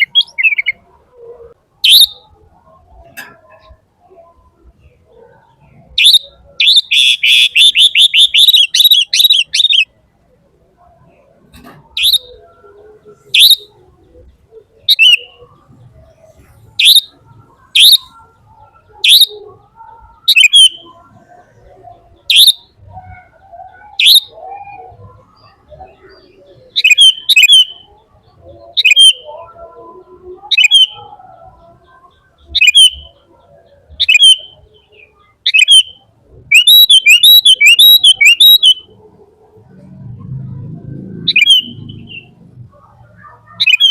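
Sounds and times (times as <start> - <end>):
bird chirping loudly: 0.0 - 0.8, 1.8 - 2.3, 6.0 - 9.9, 11.9 - 12.6, 13.3 - 13.8, 14.8 - 15.4, 16.8 - 18.2, 18.9 - 19.5, 20.3 - 21.0, 22.3 - 22.7, 23.5 - 27.9, 28.6 - 29.4, 30.4 - 31.1, 32.5 - 33.2, 34.0 - 38.9, 41.2 - 42.4, 43.5 - 43.9.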